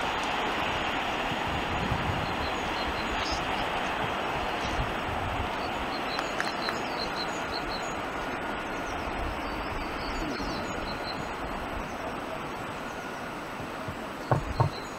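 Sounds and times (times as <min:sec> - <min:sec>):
steam train rumble: 0:00.0 - 0:14.9
small birds chirping: 0:02.1 - 0:04.9, 0:05.5 - 0:13.3, 0:14.0 - 0:14.9.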